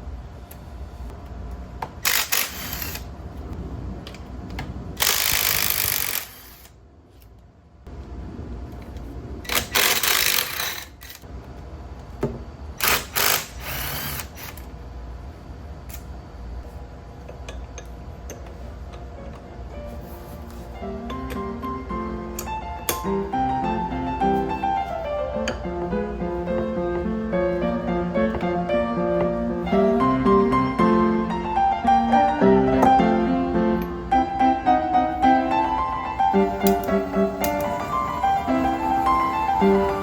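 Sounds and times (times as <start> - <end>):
workshop tool hissing: 2.0 - 3.1, 5.0 - 6.8, 12.8 - 14.6, 35.2 - 40.0.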